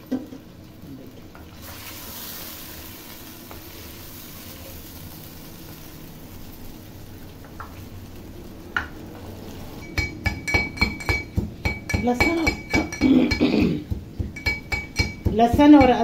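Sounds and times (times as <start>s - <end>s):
chicken sizzling in oil: 0.0s - 10.2s.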